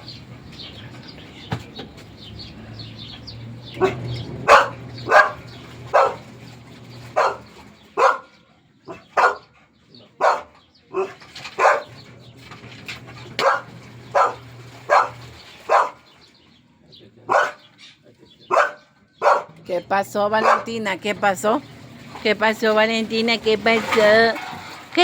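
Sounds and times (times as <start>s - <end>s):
dog barking: 3.8s - 6.3s, 7.1s - 9.5s, 10.2s - 12.0s, 13.4s - 16.0s, 17.3s - 17.7s, 18.5s - 19.6s, 20.4s - 20.8s.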